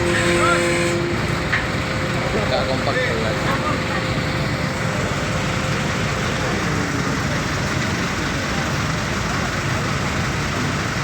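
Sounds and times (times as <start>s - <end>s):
heavy vehicle engines and traffic: 0.0s - 11.0s.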